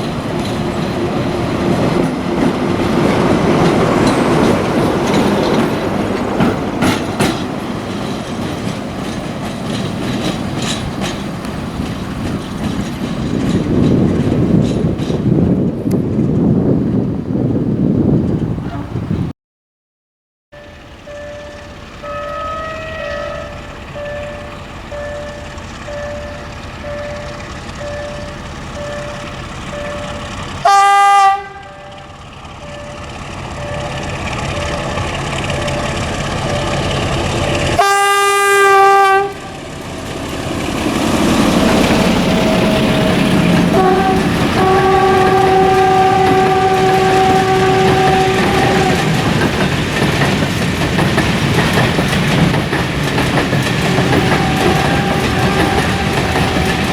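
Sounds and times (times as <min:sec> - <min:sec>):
wheels clicking over rail joints: 0:00.0 - 0:16.6, 0:20.6 - 0:56.9
train passing rumble: 0:00.0 - 0:19.3, 0:20.6 - 0:56.9
beeping tone: 0:20.6 - 0:30.3, 0:32.6 - 0:37.8
train horn blasts: 0:20.6 - 0:39.6, 0:41.5 - 0:49.4, 0:53.8 - 0:56.9.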